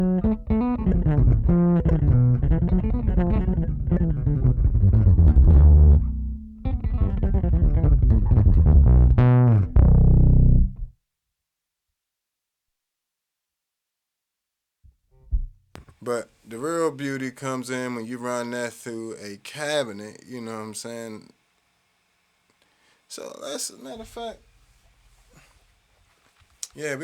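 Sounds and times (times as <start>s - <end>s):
distorted electric bass riff: 0.0s - 11.0s.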